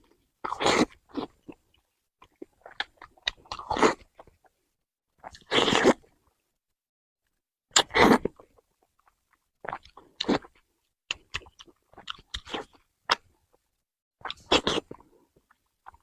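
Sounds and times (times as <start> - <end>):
wet chewing and biting: 0.4 - 4.6, 5.2 - 6.2, 7.7 - 13.4, 14.2 - 16.0.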